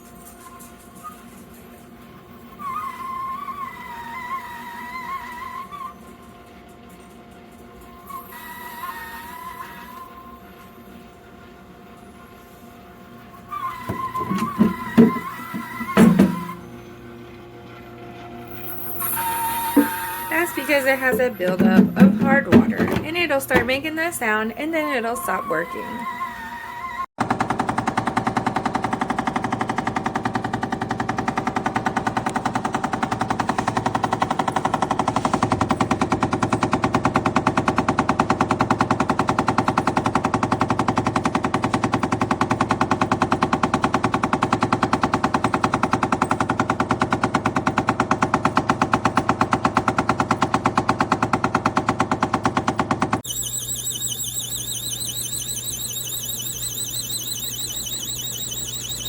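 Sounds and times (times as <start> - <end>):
ice maker rattling knock: 21.1 - 23.8
warbling high-pitched sound: 53.2 - 59.0.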